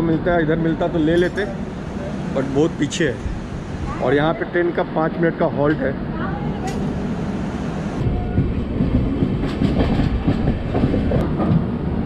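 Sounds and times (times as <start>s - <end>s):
low train rumble: 0.0s - 12.0s
train wheels clattering over rail joints: 8.3s - 11.9s.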